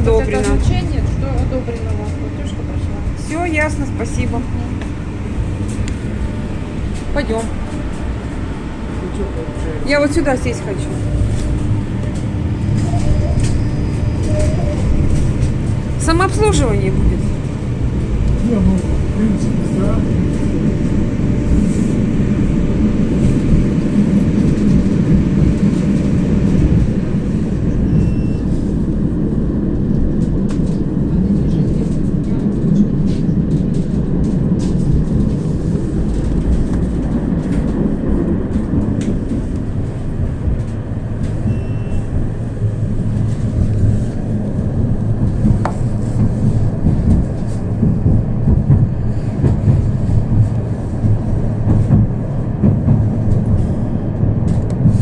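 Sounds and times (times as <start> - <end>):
tram wheels rumbling on rails: 0.0 - 55.0.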